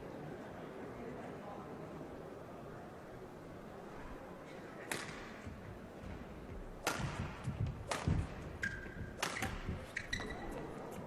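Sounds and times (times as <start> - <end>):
rackets hitting shuttlecock: 4.9 - 11.0
low thuds: 5.5 - 10.0.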